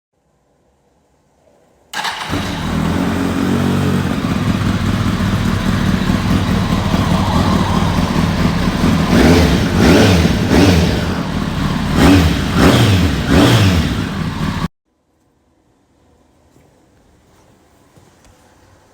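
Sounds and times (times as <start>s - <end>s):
motorcycle engine idling and revving: 2.0s - 14.7s.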